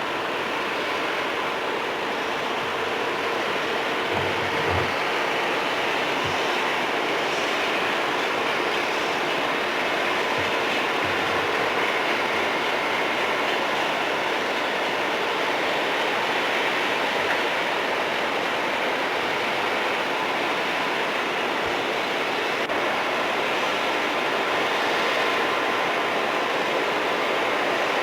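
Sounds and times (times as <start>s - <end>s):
train cars rolling on rails: 0.2s - 22.2s.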